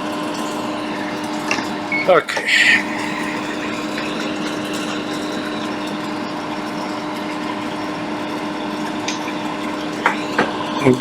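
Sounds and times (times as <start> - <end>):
electric blower fan running: 0.0 - 11.0.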